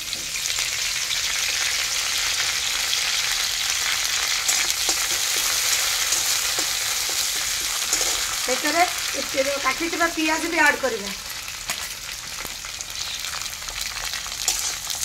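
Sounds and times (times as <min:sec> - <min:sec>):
leaves sizzling in hot oil: 0:00.0 - 0:15.0
metal spatula scraping pan: 0:04.4 - 0:08.7, 0:14.4 - 0:15.0.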